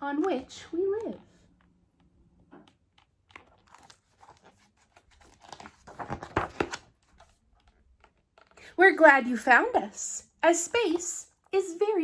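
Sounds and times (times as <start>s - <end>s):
book pages rustling: 2.6s - 8.6s.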